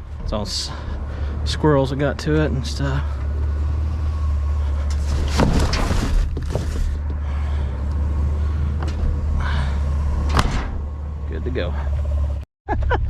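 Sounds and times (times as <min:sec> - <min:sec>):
steady low rumble: 0:00.0 - 0:13.0
rustle of trash being shifted: 0:04.6 - 0:07.0.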